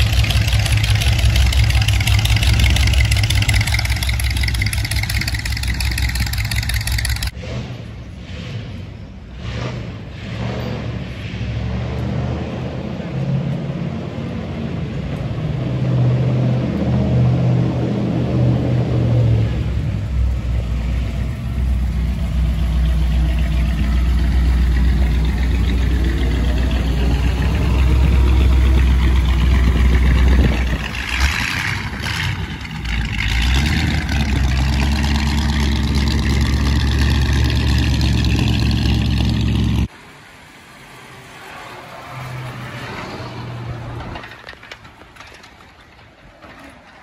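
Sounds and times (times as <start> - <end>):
car engine deep hum: 0.0 - 8.1, 19.4 - 39.9
street noise: 0.0 - 47.0.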